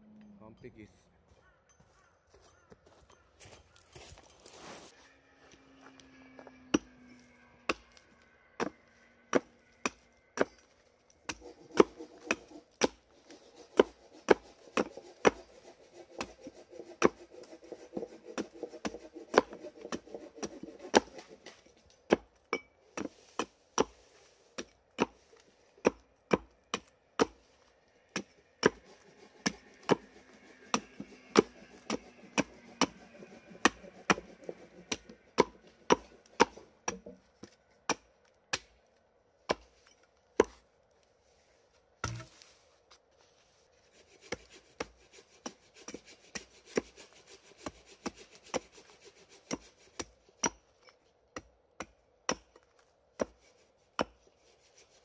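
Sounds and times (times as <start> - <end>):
wood being chopped: 11.3 - 13.0, 24.6 - 25.2, 25.8 - 27.5, 30.7 - 33.0, 33.6 - 38.8, 40.4 - 40.6, 42.0 - 42.4.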